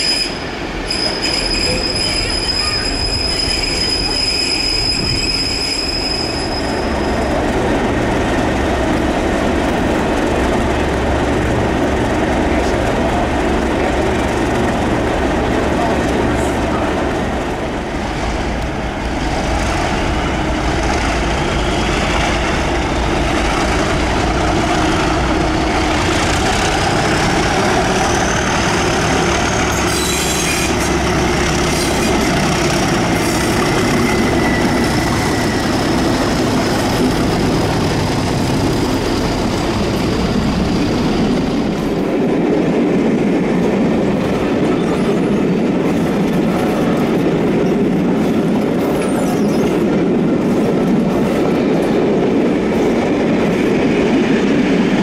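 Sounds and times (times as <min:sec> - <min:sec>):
high wheel squeal: 0:00.0 - 0:07.4, 0:29.3 - 0:31.0, 0:33.2 - 0:36.2
train wheels rumbling: 0:00.0 - 0:55.0.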